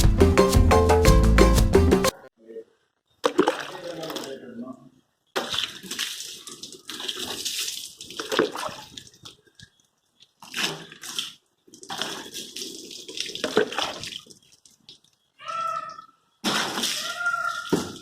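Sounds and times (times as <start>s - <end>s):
water splashing on a car: 5.4s - 9.4s, 10.4s - 15.1s.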